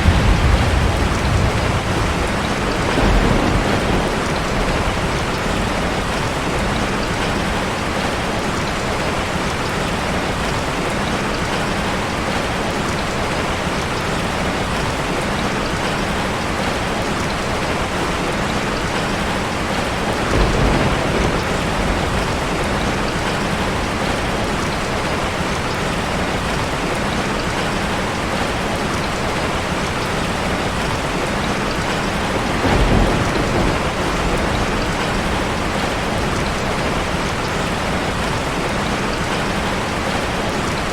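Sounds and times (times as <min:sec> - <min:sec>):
heavy rain on a car: 0:00.0 - 0:40.9.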